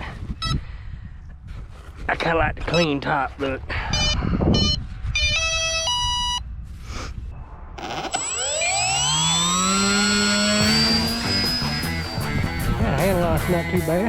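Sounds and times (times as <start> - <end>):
electronic beeps at stepped pitches: 7.4 - 12.8
electric motor and propeller whine: 7.8 - 12.9.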